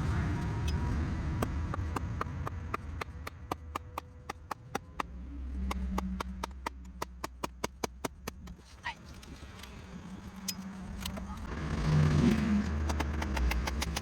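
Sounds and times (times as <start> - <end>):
low hum: 0.0 - 13.4
sharp clicks: 12.7 - 14.0.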